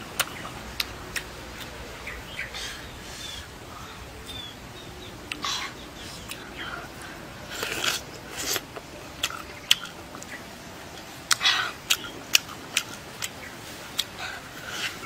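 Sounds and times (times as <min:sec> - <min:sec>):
chewing with wet mouth smacks: 0:00.2 - 0:01.8, 0:06.2 - 0:15.0.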